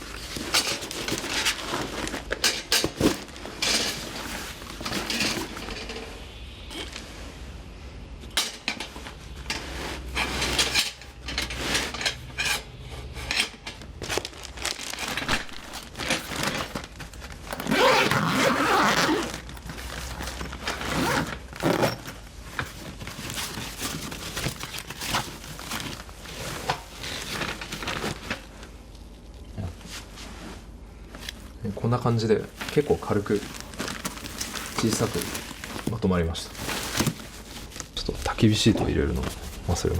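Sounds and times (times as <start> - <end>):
fabric rustling: 0.0 - 7.6, 13.8 - 28.7, 29.8 - 31.6, 32.3 - 39.9.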